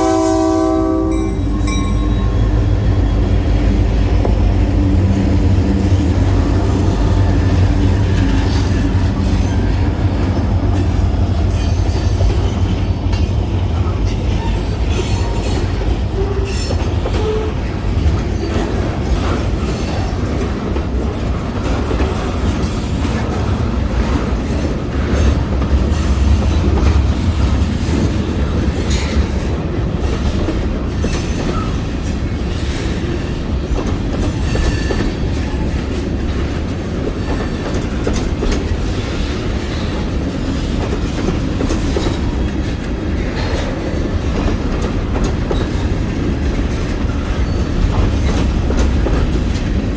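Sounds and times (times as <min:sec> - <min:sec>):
freight train rumbling: 0:00.0 - 0:49.9
wheels clacking over rail joints: 0:00.1 - 0:49.9.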